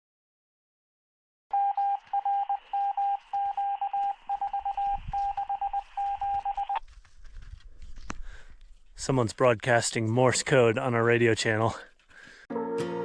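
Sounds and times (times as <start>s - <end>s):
morse code beeping over radio: 1.5s - 6.8s.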